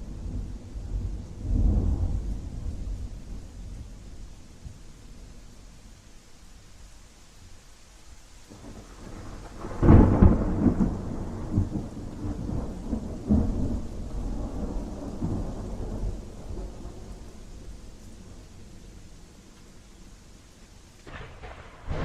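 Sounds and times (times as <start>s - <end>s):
thunder cracking and rumbling: 0.0s - 4.0s, 8.5s - 18.4s, 21.0s - 22.0s
steady rain: 0.0s - 22.0s.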